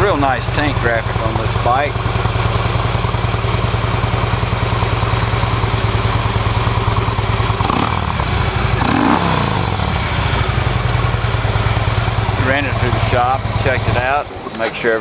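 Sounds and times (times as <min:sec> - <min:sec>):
motorcycle engine idling: 0:00.0 - 0:15.0
motorcycle throttle blip: 0:00.4 - 0:15.0.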